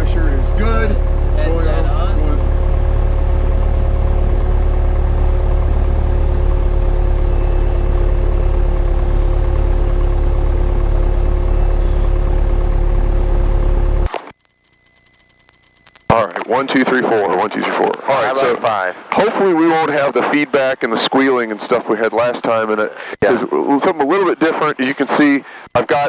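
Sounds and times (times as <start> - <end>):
airplane engine idling: 0.0 - 14.1
steady tones: 0.0 - 22.7.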